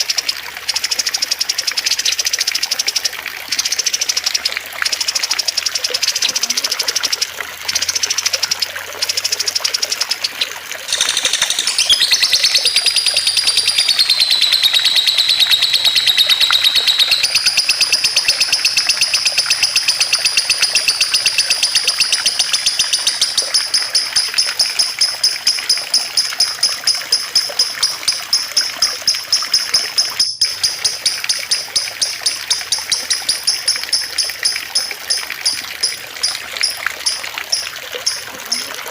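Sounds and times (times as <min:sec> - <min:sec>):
water trickling: 0:00.0 - 0:38.9
songbirds singing: 0:07.7 - 0:26.6
bird trilling: 0:10.0 - 0:26.6, 0:30.2 - 0:38.7.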